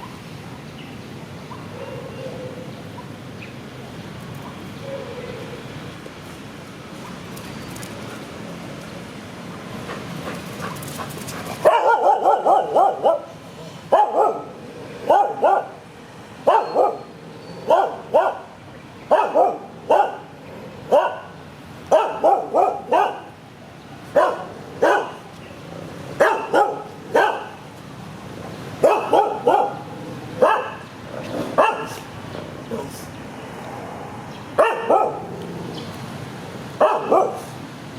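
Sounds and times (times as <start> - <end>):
dog barking: 11.6 - 13.3, 13.9 - 15.8, 16.4 - 17.1, 17.7 - 18.5, 19.1 - 20.3, 20.9 - 23.3, 24.1 - 25.2, 26.2 - 27.6, 28.8 - 30.9, 31.6 - 32.0, 34.6 - 35.3, 36.8 - 37.5.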